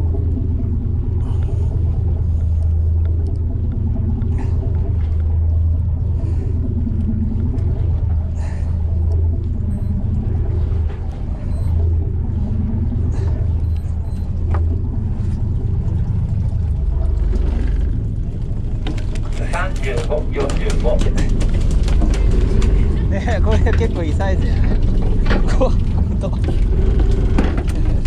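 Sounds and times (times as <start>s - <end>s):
faint wavering tone: 0.0s - 18.0s
boat engine rumbling: 0.0s - 28.0s.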